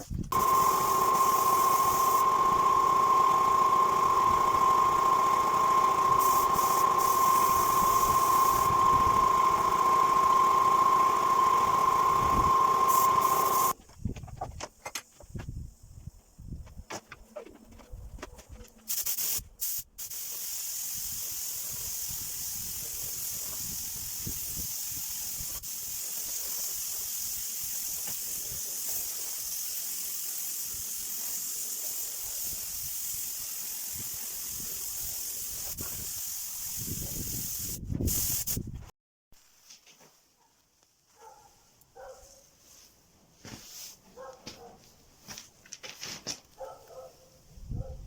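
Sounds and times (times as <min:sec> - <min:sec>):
pressurised jet hissing: 0:00.3 - 0:13.7.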